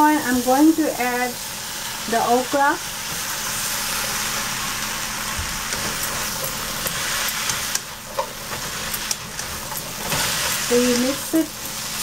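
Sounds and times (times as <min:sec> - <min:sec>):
vegetables sizzling in oil: 0:00.0 - 0:12.0
spatula scraping pan: 0:05.7 - 0:11.2.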